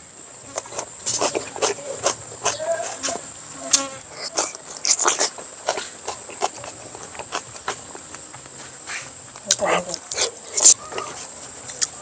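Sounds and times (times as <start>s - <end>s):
chewing and smacking: 0.5s - 3.2s, 3.8s - 8.5s, 9.4s - 12.0s.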